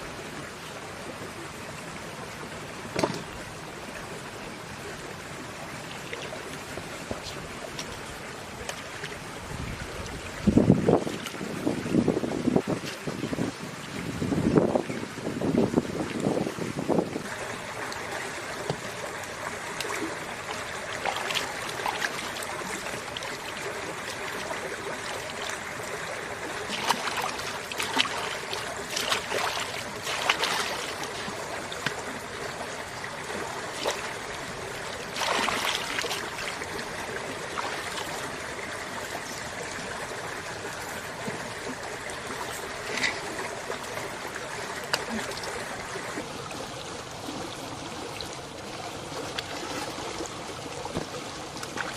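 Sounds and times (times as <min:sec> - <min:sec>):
stream water running: 0:00.0 - 0:51.9
splashes or knocks: 0:02.9 - 0:03.3, 0:26.7 - 0:32.0, 0:35.1 - 0:36.6.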